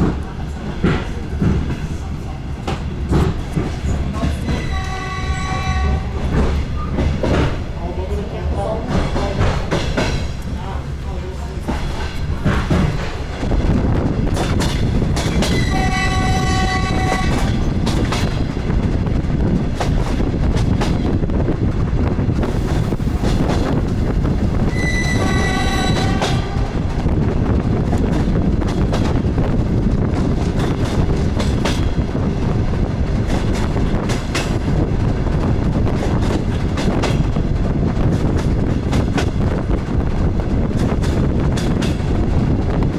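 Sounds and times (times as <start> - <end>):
wheels clacking over rail joints: 0.0 - 18.8, 22.8 - 35.1
diesel railcar rumble: 0.0 - 42.9
train horn chord: 4.6 - 6.2, 15.6 - 17.5, 24.7 - 26.7.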